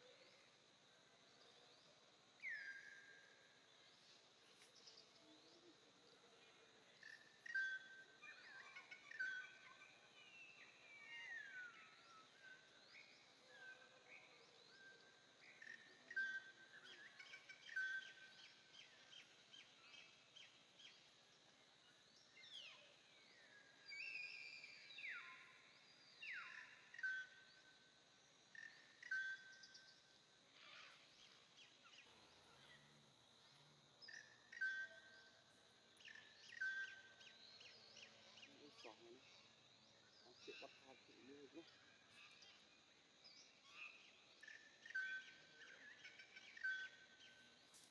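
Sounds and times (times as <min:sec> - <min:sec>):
bird chirps: 0:28.5 - 0:42.7.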